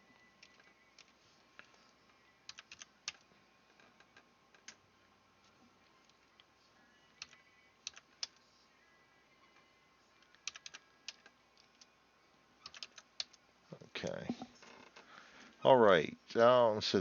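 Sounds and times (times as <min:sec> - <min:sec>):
computer keyboard keystrokes: 0:02.5 - 0:03.2, 0:07.2 - 0:08.4, 0:10.3 - 0:11.9, 0:12.6 - 0:13.4.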